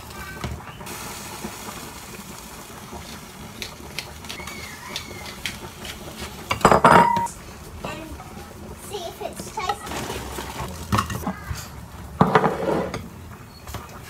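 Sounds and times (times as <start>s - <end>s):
food sizzling in a frying pan: 0.0s - 14.0s
kitchen utensils clicking and knocking: 3.6s - 7.3s, 9.5s - 13.1s.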